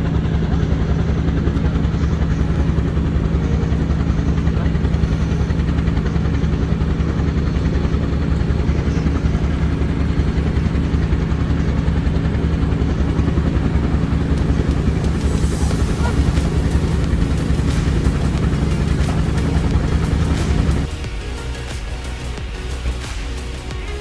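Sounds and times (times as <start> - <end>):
propeller plane engine droning: 0.0 - 24.0.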